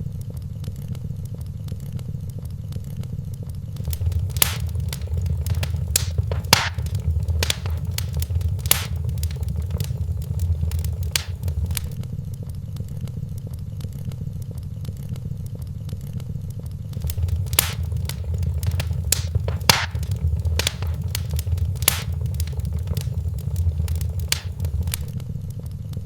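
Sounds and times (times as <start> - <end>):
fire crackling and popping: 3.8 - 12.0, 17.0 - 25.1
low rumble of burning fire: 3.8 - 12.0, 16.9 - 25.2.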